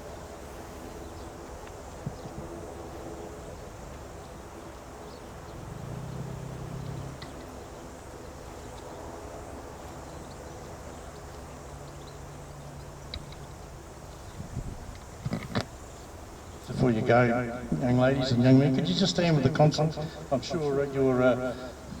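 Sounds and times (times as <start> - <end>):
distant traffic hum: 0.0 - 22.0
low engine drone: 5.5 - 7.8.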